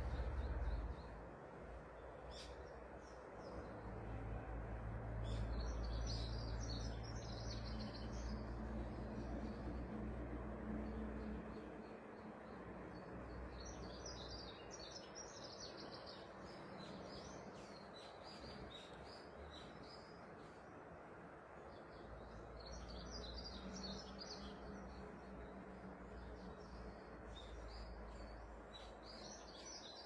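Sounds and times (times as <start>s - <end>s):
birds chirping: 5.2s - 30.0s.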